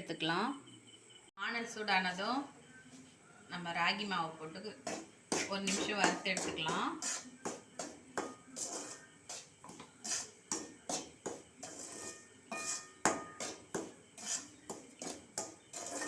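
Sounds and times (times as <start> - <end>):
spoon scraping a pan: 4.5 - 16.0.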